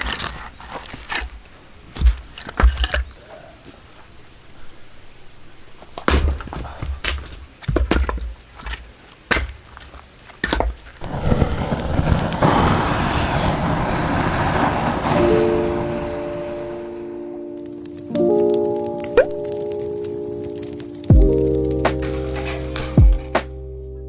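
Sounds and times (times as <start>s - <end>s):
axe chopping firewood: 6.0s - 11.1s
steady rushing noise: 11.0s - 18.0s.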